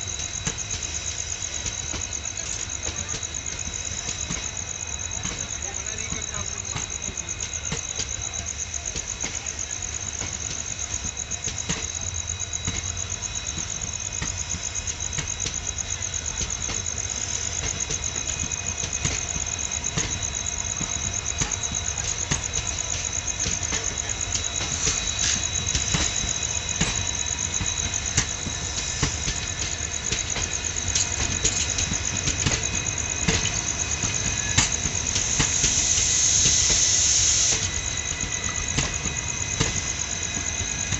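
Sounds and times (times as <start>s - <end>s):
clicks and rattles of train: 0.0s - 40.9s
high hiss: 0.0s - 40.9s
train rumbling on track: 0.0s - 40.9s.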